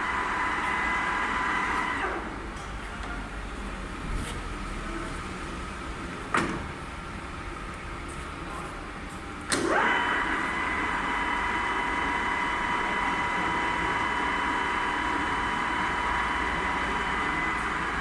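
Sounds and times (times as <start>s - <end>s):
lathe spindle gear whine: 0.0s - 2.6s, 9.6s - 18.0s.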